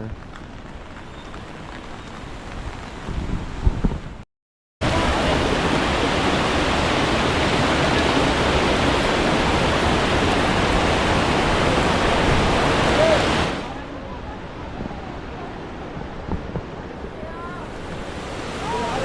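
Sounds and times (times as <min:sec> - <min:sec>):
mountain stream rushing: 0:04.8 - 0:19.0.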